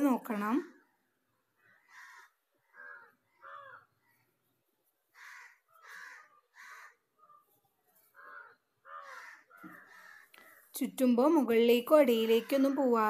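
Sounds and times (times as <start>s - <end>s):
harsh bird calls: 0.8s - 10.7s.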